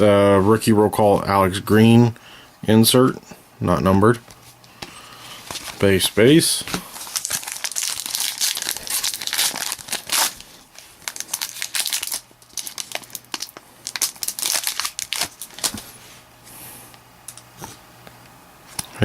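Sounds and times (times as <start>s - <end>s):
card pack wrappers crinkling: 5.3s - 16.0s.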